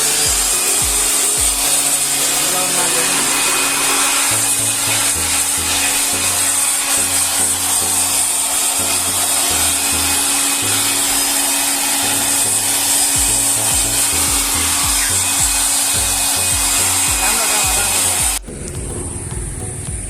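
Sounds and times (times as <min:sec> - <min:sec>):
music with stepping bass line: 0:00.0 - 0:06.6, 0:12.5 - 0:20.0
loud steady rushing noise: 0:00.0 - 0:20.0.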